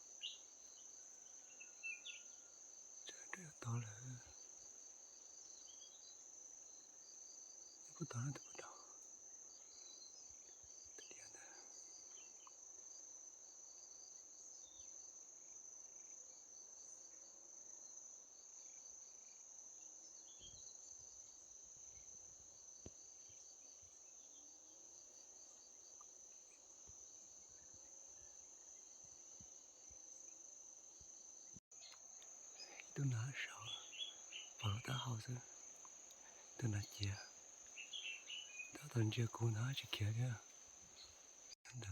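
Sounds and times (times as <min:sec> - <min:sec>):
quick insect chirps: 0:00.0 - 0:41.9
insect high-pitched drone: 0:29.8 - 0:41.9.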